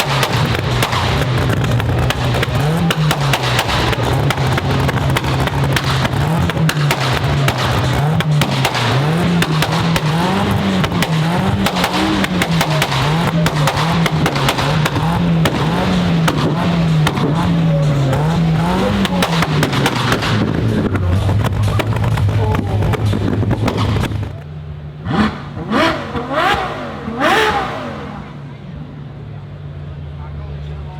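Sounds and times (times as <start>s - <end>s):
sports car engine revving: 0.0s - 29.7s
exhaust crackling pops: 21.4s - 29.1s.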